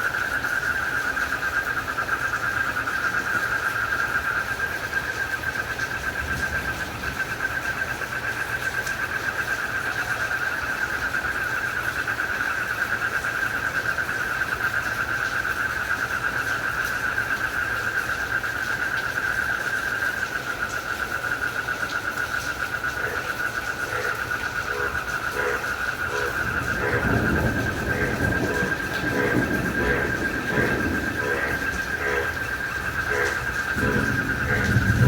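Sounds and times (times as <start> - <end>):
crickets trilling: 0.0 - 35.0
background hiss: 21.5 - 35.0.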